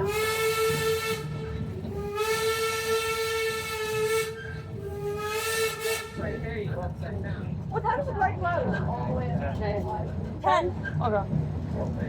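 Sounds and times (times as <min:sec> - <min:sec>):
steam locomotive whistle: 0:00.0 - 0:06.3.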